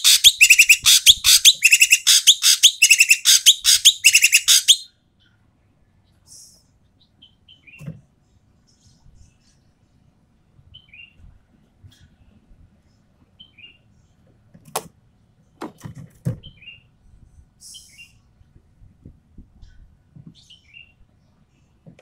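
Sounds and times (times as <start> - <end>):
bird giving harsh calls: 0.0 - 4.9.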